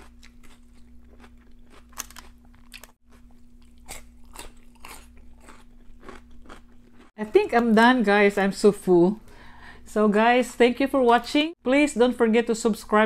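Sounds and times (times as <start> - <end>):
crunching and chewing celery: 0.0 - 7.1.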